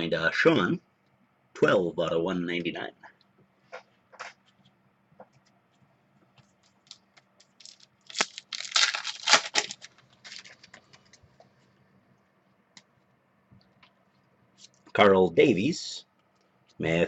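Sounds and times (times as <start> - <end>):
wrapper crinkling: 6.6 - 11.2
wrapper tearing open: 6.8 - 10.8.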